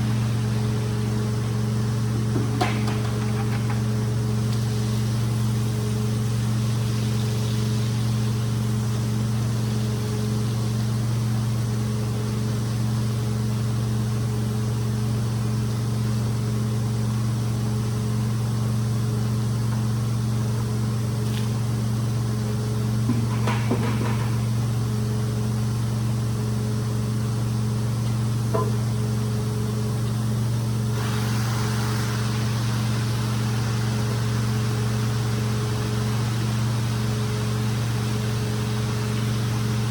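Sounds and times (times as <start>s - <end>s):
rug cleaning machine hum: 0.0s - 12.9s, 19.2s - 39.9s
hiss: 4.4s - 11.1s, 30.9s - 39.9s.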